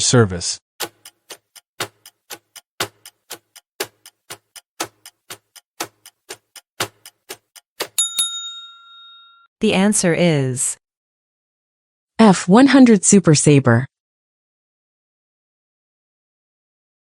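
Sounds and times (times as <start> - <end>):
countdown timer ticking: 0.8 - 8.4
bell dinging: 7.9 - 9.5.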